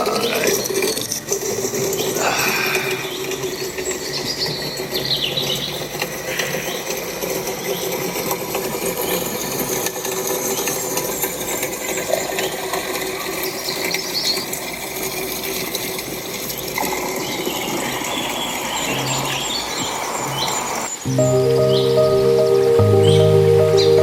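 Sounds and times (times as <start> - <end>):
spring water running: 0.0 - 4.0.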